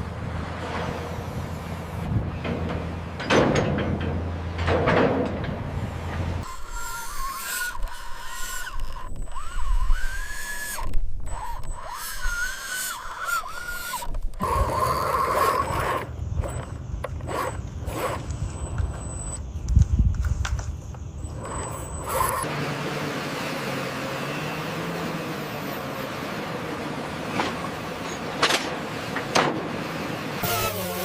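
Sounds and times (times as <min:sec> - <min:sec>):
small electric motor whining: 0:06.4 - 0:19.8, 0:21.1 - 0:22.5, 0:30.4 - 0:31.0.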